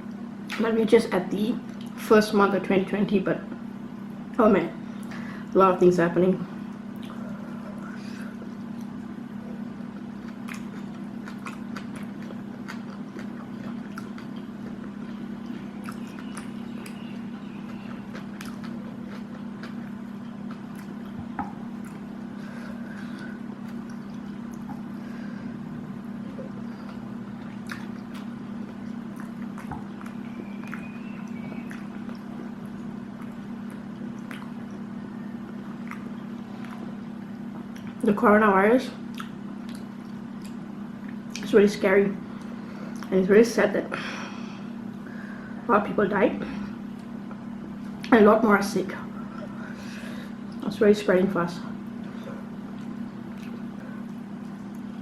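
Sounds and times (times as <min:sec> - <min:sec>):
steady low hum: 0:00.0 - 0:55.0
chewing and eating: 0:06.5 - 0:38.2, 0:38.9 - 0:43.2, 0:46.4 - 0:50.8, 0:51.6 - 0:55.0.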